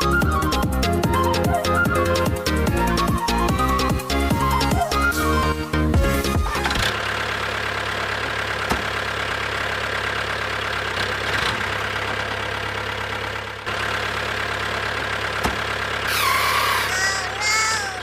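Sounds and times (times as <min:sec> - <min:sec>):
small motor whining: 0:16.1 - 0:18.0.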